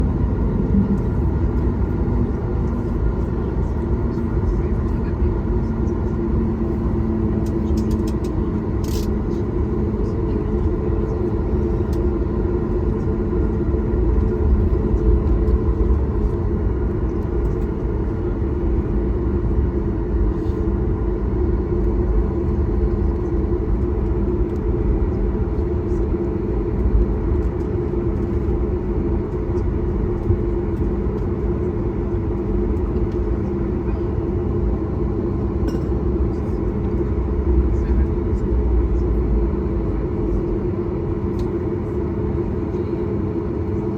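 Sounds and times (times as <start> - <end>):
low hum: 0.0 - 43.8
airliner engines and airflow: 0.0 - 43.9.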